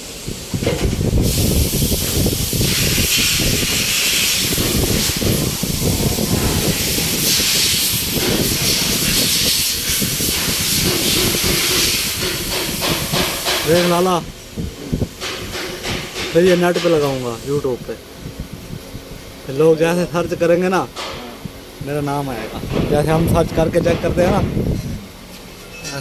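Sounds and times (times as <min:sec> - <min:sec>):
loud steady hiss: 0:00.0 - 0:26.0
low rumble: 0:04.4 - 0:07.4.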